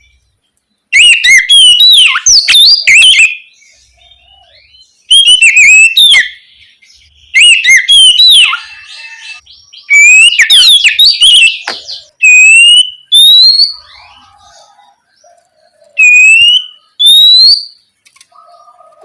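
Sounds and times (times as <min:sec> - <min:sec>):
bird singing whistled phrases: 0:00.9 - 0:15.0, 0:15.9 - 0:17.8.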